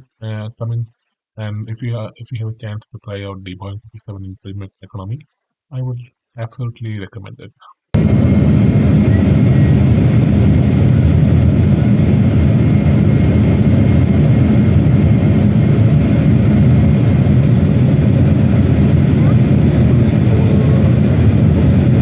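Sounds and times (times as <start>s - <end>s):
airliner cabin rumble: 8.0s - 22.0s
faint high whine: 8.0s - 22.0s.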